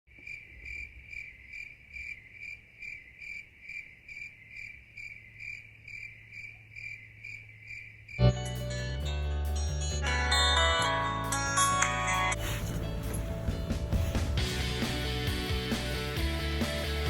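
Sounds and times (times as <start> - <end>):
cricket chirping: 0.1 - 8.4.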